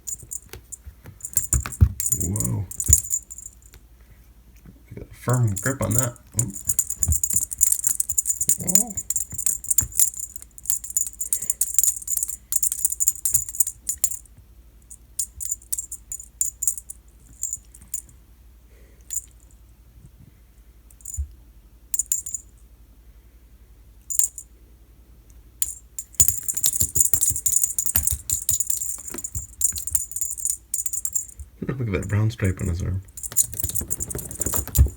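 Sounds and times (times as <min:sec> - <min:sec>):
cat toy jingling and rattling: 0:00.0 - 0:03.7, 0:05.4 - 0:14.2, 0:15.2 - 0:18.1, 0:25.6 - 0:34.9.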